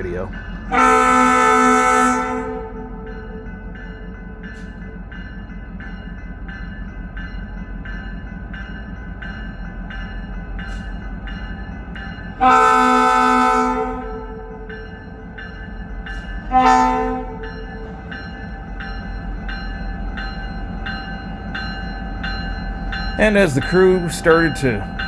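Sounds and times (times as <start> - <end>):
locomotive engine rumbling: 0.0 - 5.9, 10.7 - 25.0
locomotive bell ringing: 0.0 - 25.0
train air horn: 0.7 - 3.1, 12.4 - 14.7, 16.5 - 17.8.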